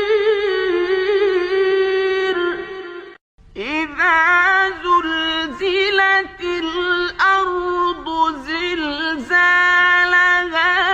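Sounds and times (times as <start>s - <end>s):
man chanting melodically: 3.6s - 10.9s.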